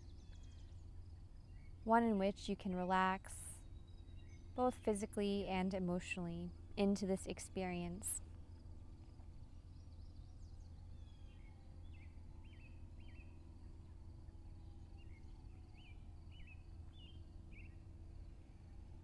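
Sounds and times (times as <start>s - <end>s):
bird chirping: 14.5s - 18.8s.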